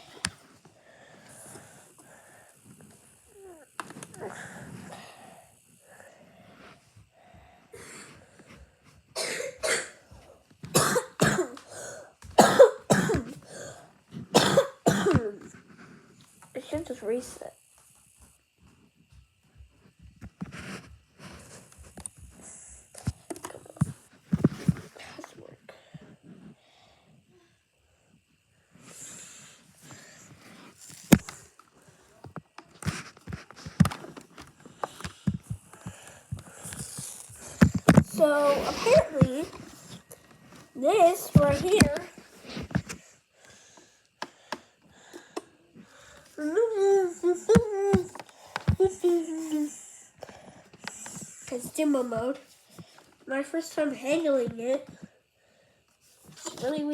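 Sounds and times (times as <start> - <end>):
person coughing: 9.2 - 10.0, 10.7 - 15.4.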